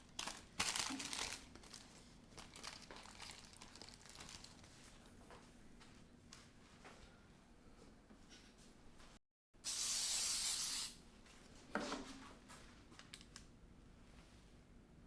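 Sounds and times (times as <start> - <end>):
aerosol spray hissing: 9.7 - 11.0.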